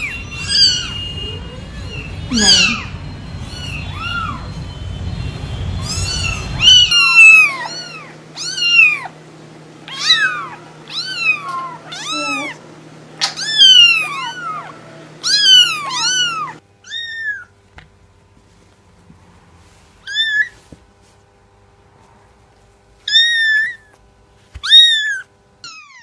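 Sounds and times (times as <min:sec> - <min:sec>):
cat meowing: 0:00.0 - 0:04.6, 0:05.8 - 0:09.2, 0:09.9 - 0:12.6, 0:13.2 - 0:17.5, 0:20.0 - 0:20.6, 0:23.1 - 0:23.9, 0:24.6 - 0:26.0.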